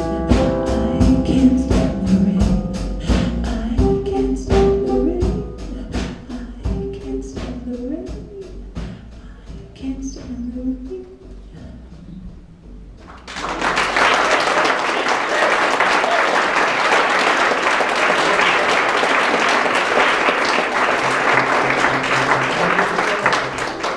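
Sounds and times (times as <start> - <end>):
audience applauding: 13.1 - 23.9.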